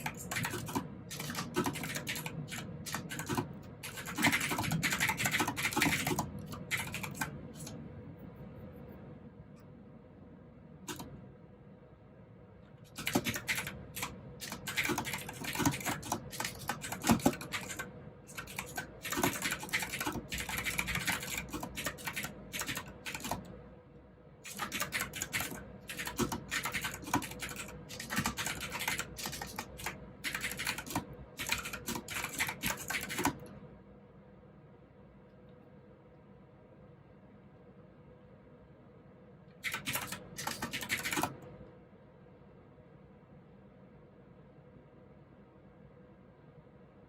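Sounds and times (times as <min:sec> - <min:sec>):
clicky keyboard typing: 0:00.0 - 0:07.8, 0:10.8 - 0:11.2, 0:12.8 - 0:23.5, 0:24.5 - 0:33.6, 0:39.6 - 0:41.6.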